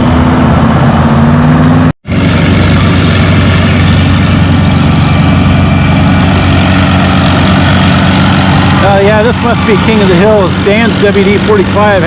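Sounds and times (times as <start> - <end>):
tractor engines rumbling: 0.0 - 12.0.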